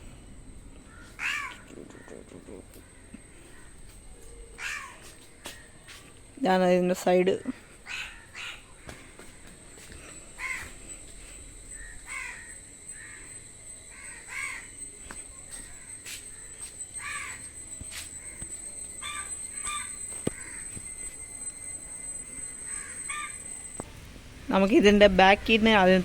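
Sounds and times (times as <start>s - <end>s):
faint high-pitched tone: 0.0s - 26.0s
birds calling harshly: 0.9s - 6.0s, 7.6s - 24.4s.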